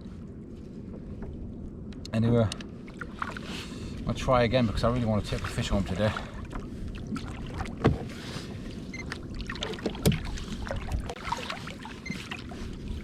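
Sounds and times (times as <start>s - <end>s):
water sloshing against kayak hull: 2.6s - 13.0s.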